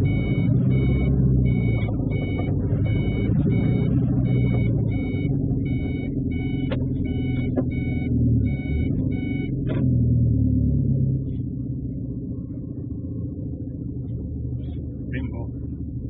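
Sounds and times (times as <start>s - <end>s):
electronic warning beeps: 0.0s - 9.6s
truck engine rumbling: 0.0s - 16.0s.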